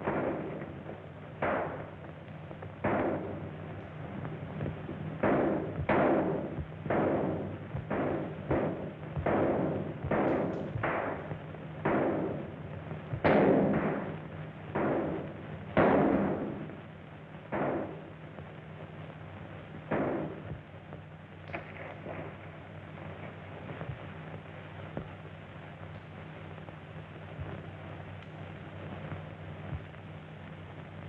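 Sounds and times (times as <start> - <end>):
sharp echoing bangs: 0.0 - 2.0, 2.8 - 3.8, 4.6 - 12.6, 13.2 - 16.8, 17.5 - 18.0, 19.9 - 20.4
low soundtrack hum: 0.0 - 31.0.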